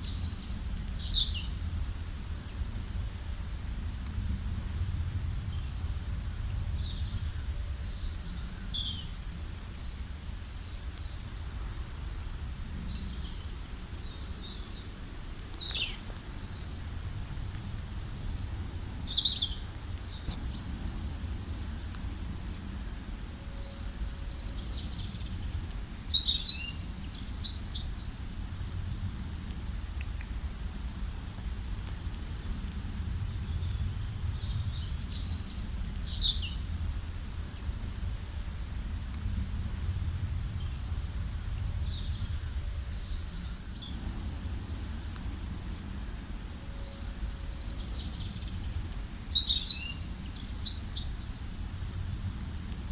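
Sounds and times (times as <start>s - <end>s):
low background rumble: 0.0s - 52.9s
songbirds chirping and trilling: 5.1s - 17.0s, 17.7s - 28.4s, 40.3s - 51.7s.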